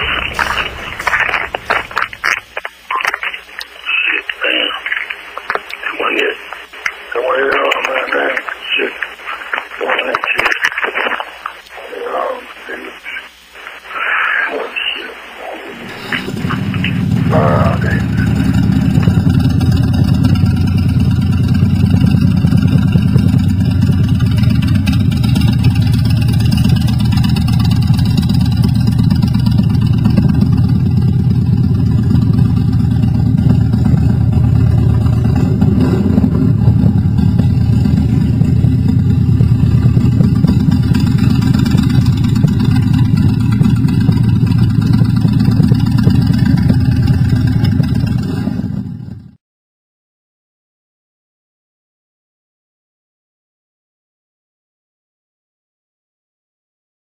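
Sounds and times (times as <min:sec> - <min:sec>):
motorcycle engine running: 0:00.0 - 0:07.8, 0:15.9 - 0:49.4.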